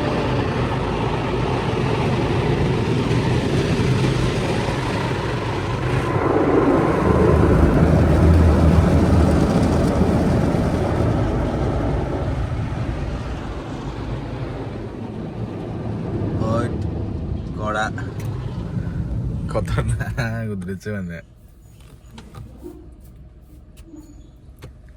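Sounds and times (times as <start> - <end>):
car wash spray rushing: 0.0 - 20.5
low hum: 0.0 - 24.5.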